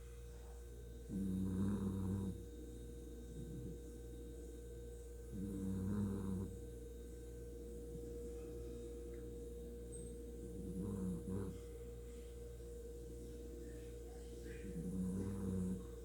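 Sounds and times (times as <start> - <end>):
steady hum: 0.0 - 16.0
dog snoring: 1.0 - 6.9, 10.4 - 11.9, 14.3 - 16.0.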